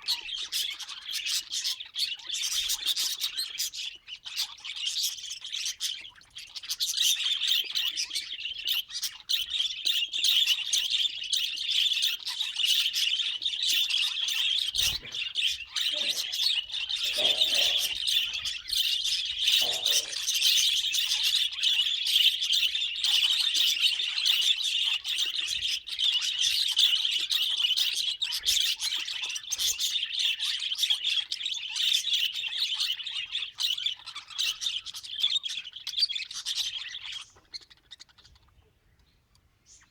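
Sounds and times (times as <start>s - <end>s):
budgerigars chirping: 0.0s - 39.9s
low bird calls: 11.2s - 24.4s.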